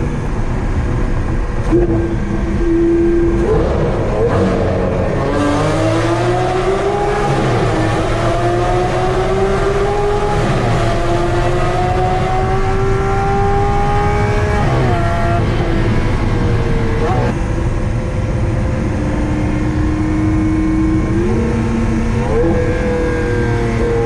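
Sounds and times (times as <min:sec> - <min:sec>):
sports car engine accelerating: 0:00.0 - 0:24.0.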